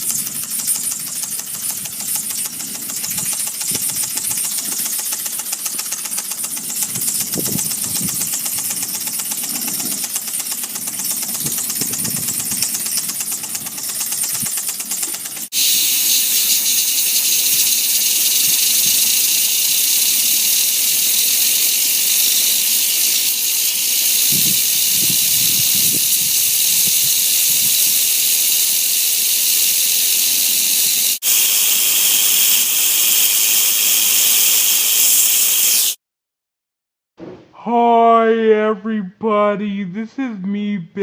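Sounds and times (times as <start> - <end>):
steam hissing from boiler: 0.0 - 36.0.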